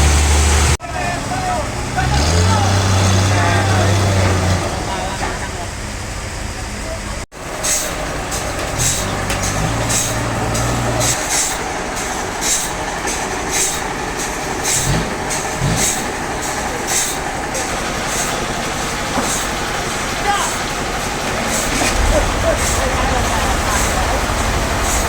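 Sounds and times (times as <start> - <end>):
low motor hum: 0.0 - 0.8, 20.7 - 25.0
sawmill machinery running: 0.0 - 25.0.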